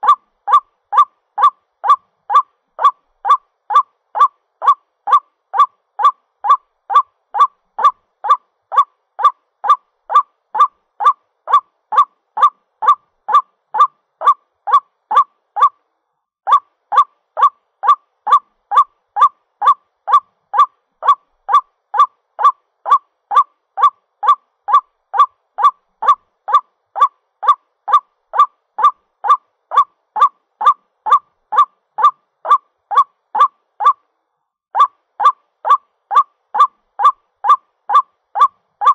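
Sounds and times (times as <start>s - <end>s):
waterhen honking calls: 0.0s - 15.7s, 34.8s - 38.9s.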